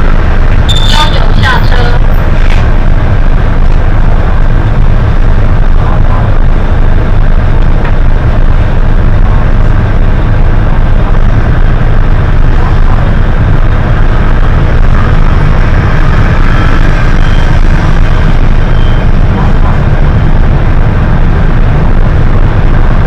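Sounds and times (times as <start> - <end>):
bus engine rumble: 0.0 - 23.0
road noise: 0.0 - 23.0.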